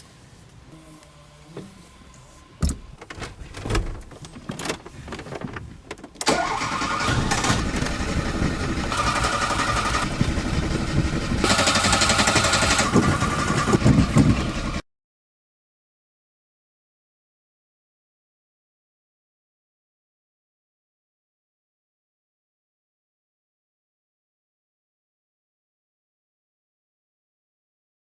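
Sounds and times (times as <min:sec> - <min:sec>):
thumps and knocks: 0:02.6 - 0:06.2
starter motor cranking engine: 0:02.6 - 0:14.8.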